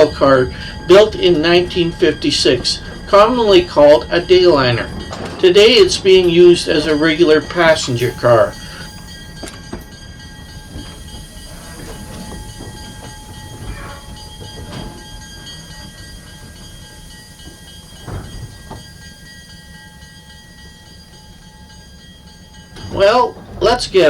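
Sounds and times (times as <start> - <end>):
diesel locomotive idling: 0.0 - 24.0.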